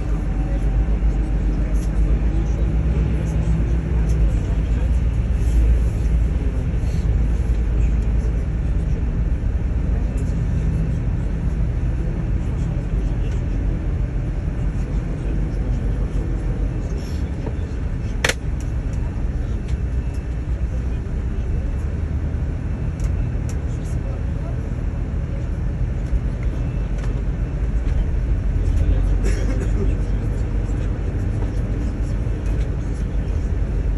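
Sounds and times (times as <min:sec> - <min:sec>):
bus engine and road rumble: 0:00.0 - 0:33.9
sharp click: 0:18.2 - 0:18.5.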